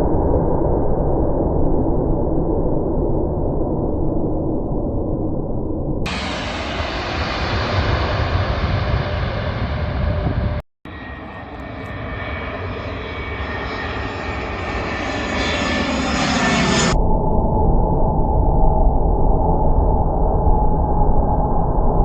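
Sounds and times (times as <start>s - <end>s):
airplane engines running: 6.1s - 17.0s.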